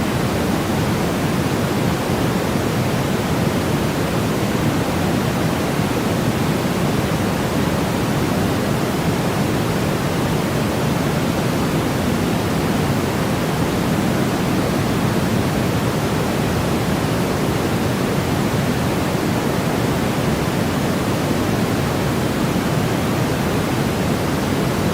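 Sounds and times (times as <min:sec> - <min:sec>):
steady white noise hiss: 0:00.0 - 0:24.9.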